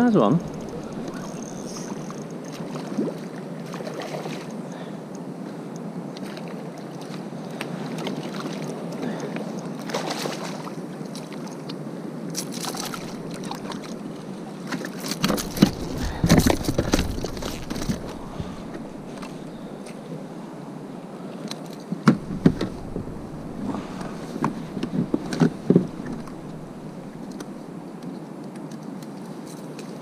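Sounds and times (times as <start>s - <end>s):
water washing around kayak: 0.0s - 27.9s
wind: 0.0s - 30.0s
knocks against boat: 14.8s - 19.6s, 22.0s - 27.5s.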